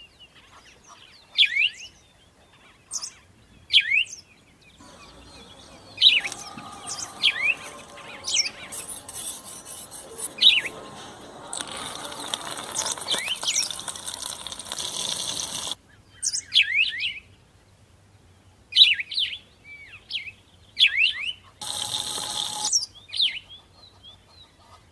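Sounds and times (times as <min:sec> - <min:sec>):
steady hiss: 0:04.8 - 0:15.8, 0:21.6 - 0:22.8.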